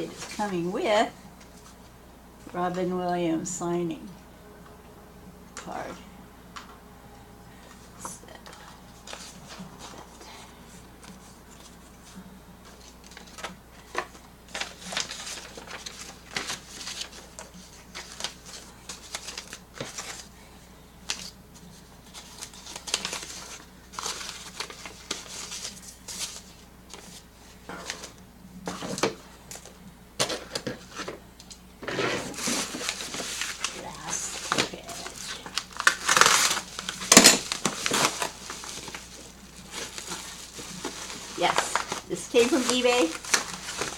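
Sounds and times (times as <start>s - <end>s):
packaging rustling and crinkling: 11.0s - 20.3s, 21.0s - 31.2s, 31.8s - 43.9s.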